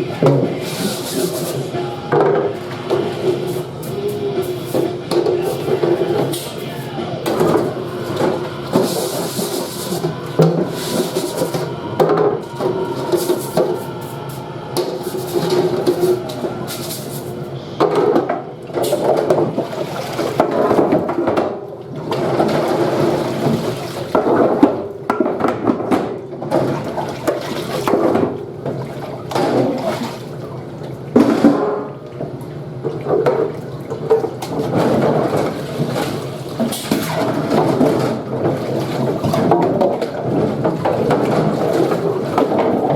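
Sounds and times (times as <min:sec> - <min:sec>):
running water: 0:00.0 - 0:24.7, 0:26.5 - 0:42.9
trays knocking and clattering: 0:02.1 - 0:03.4, 0:24.1 - 0:28.4.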